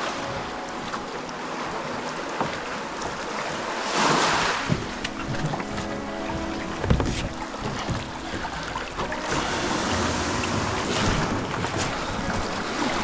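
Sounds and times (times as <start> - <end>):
waves splashing against kayak hull: 0.0 - 13.0
wind on microphone: 4.0 - 13.0.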